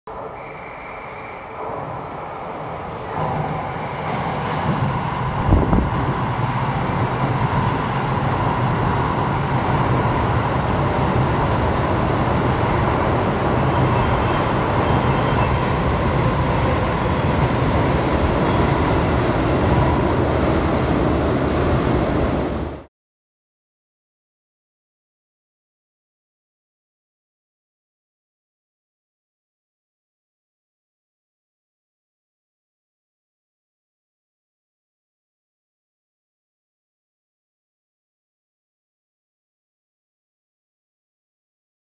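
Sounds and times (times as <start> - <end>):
train wheels rushing: 0.4 - 22.9.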